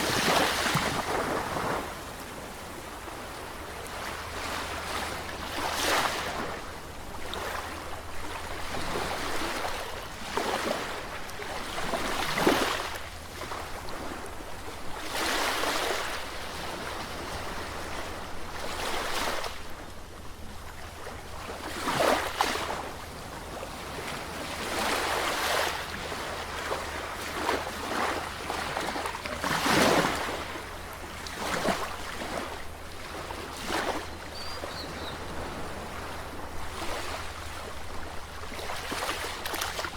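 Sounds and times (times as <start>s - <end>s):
sea waves breaking: 0.0s - 19.6s, 21.6s - 39.9s.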